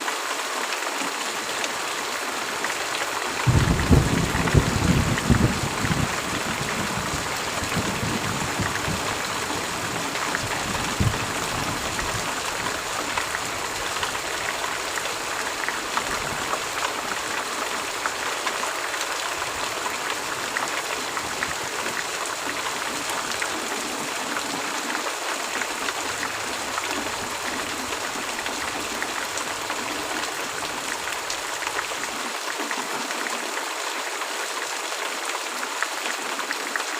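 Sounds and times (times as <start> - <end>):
heavy rain: 0.0 - 36.9
thunder rumbling: 3.4 - 15.0.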